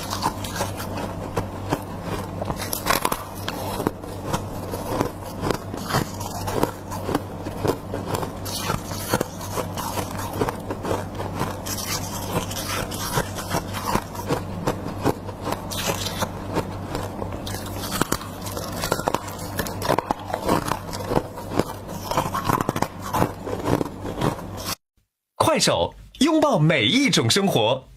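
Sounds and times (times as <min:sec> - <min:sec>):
chewing and crunching frost: 0:00.0 - 0:24.8
steady low hum: 0:00.0 - 0:24.8.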